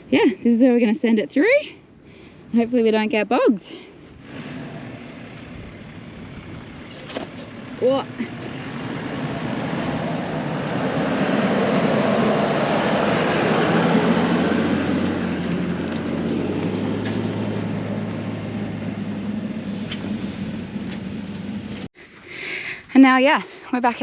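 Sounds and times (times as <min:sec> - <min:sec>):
engine working under load: 0:04.1 - 0:22.0.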